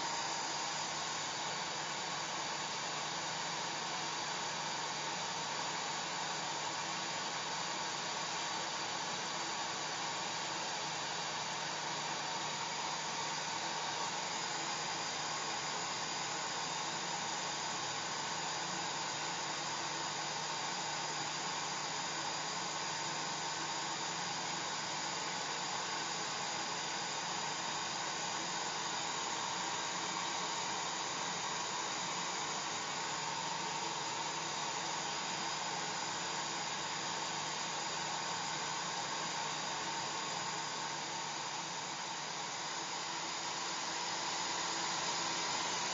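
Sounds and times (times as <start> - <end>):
hair dryer running: 21.8 - 45.9.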